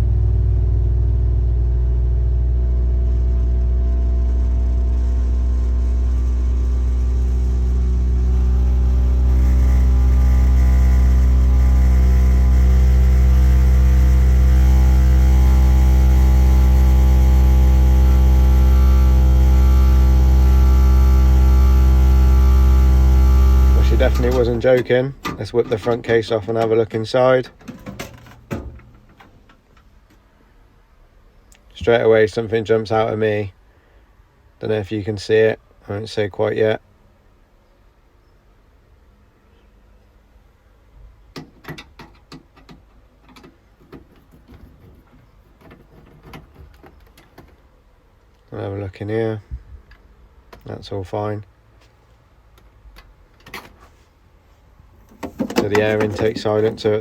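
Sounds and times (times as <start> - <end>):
gas boiler droning: 0.0 - 27.0, 54.9 - 57.0.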